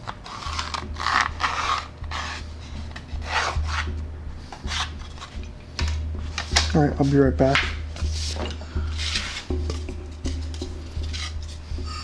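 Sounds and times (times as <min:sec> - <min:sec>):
low steady hum: 0:00.0 - 0:12.0
abrasive scraping wood: 0:06.2 - 0:12.0.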